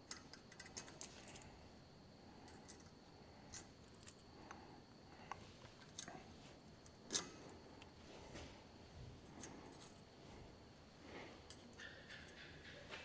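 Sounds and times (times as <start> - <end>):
small steel parts clicking and tapping: 0.0 - 1.5, 2.4 - 4.6.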